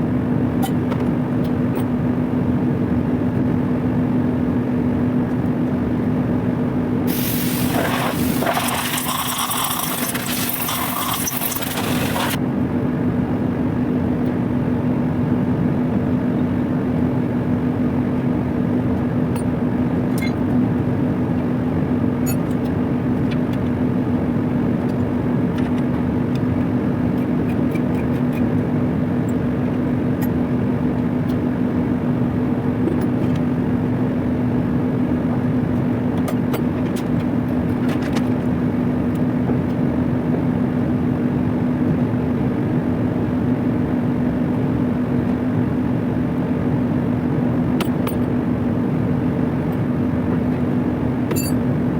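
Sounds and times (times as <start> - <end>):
industrial machinery humming: 4.0 - 14.0
loud air hiss: 7.1 - 12.4.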